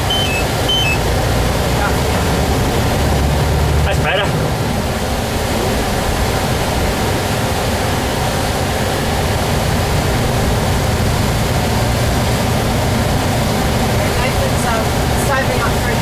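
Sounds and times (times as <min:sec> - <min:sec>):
truck engine drone: 0:00.0 - 0:04.9
road and wind noise: 0:00.0 - 0:16.0.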